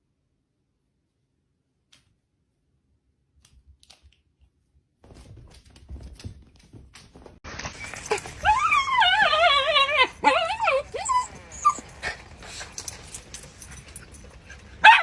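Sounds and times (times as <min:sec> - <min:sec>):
dog whining: 0:07.7 - 0:13.0
dog squeaky calls: 0:07.8 - 0:11.9.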